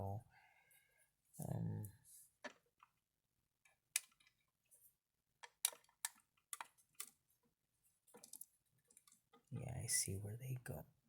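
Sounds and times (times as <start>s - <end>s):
plastic toy clicks and taps: 3.7s - 4.4s, 5.4s - 7.2s.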